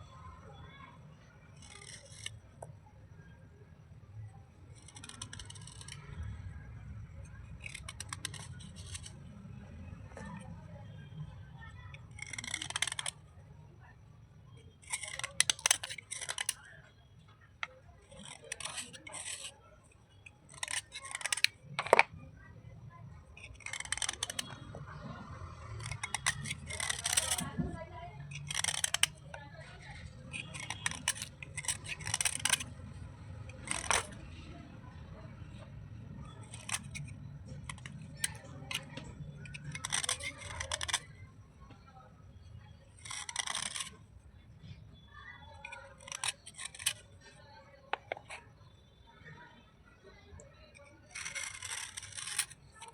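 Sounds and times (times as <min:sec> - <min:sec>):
slate crunching and scraping: 0:01.5 - 0:02.7, 0:04.6 - 0:13.3, 0:14.7 - 0:22.4, 0:23.2 - 0:48.6, 0:50.7 - 0:52.9.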